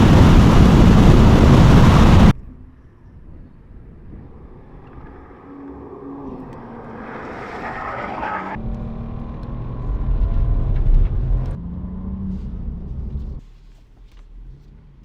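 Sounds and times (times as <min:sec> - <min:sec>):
car engine running loud: 0:00.0 - 0:02.3.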